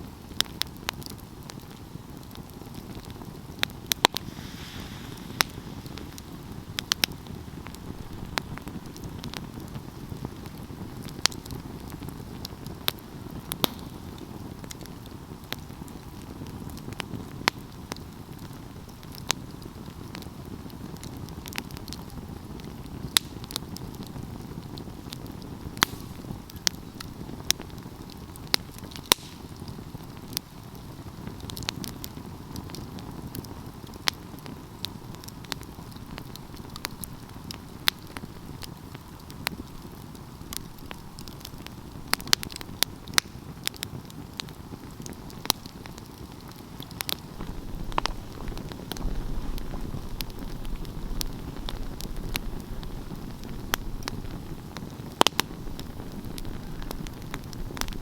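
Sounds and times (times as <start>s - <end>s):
wood fire crackling and popping: 0.0s - 58.0s
steady low rush: 3.8s - 10.0s.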